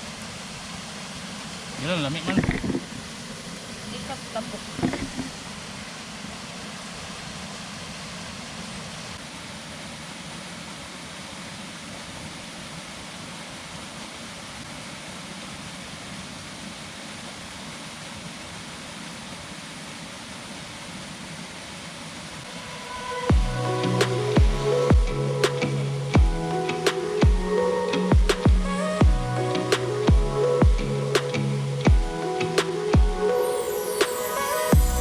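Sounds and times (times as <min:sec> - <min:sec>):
waterfall and river rushing: 0:00.0 - 0:35.0
music: 0:22.8 - 0:35.0.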